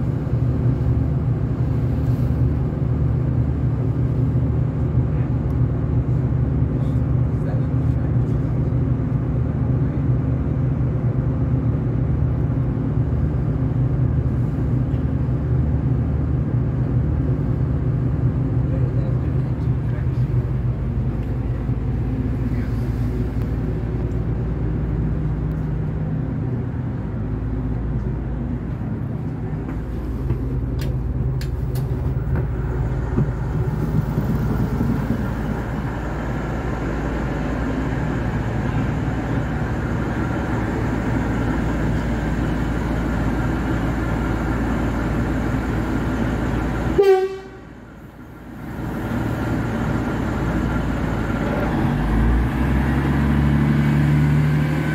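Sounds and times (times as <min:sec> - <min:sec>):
train engine drone: 0:00.0 - 0:54.9
wheels rumbling: 0:00.0 - 0:54.9
train horn toot: 0:47.0 - 0:47.7.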